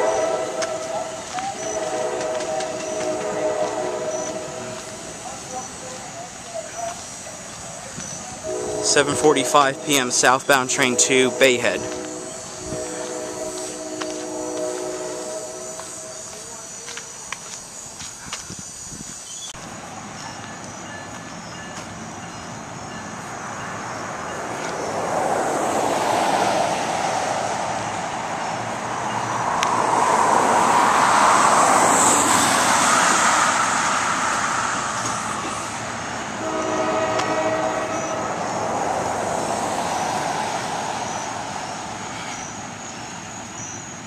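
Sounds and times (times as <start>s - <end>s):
train horn chord: 0.0s - 5.2s, 8.4s - 16.7s, 36.4s - 38.6s
train rumbling past: 0.0s - 44.0s.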